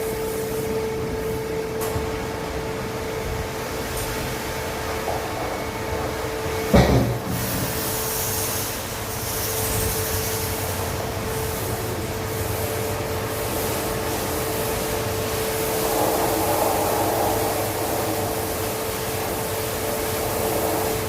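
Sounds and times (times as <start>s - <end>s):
machine hum: 0.0s - 21.0s
hiss of spraying water: 6.7s - 21.0s.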